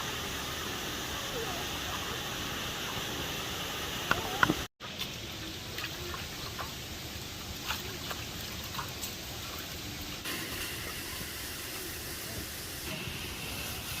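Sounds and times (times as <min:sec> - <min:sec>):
small clicks and drips: 0:04.1 - 0:10.2.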